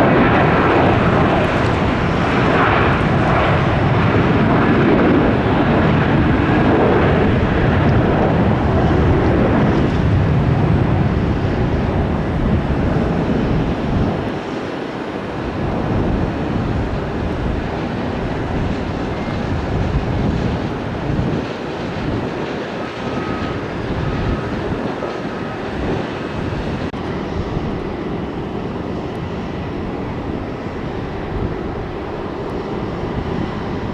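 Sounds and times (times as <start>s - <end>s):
jet airliner engines rumbling: 0.0s - 33.9s.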